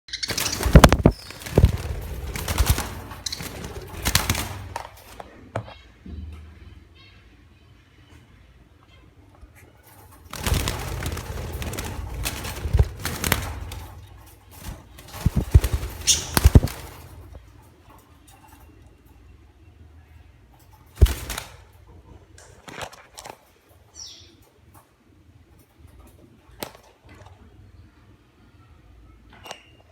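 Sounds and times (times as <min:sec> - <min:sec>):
birds flapping wings: 0:00.1 - 0:05.4, 0:09.8 - 0:17.7, 0:20.8 - 0:21.8.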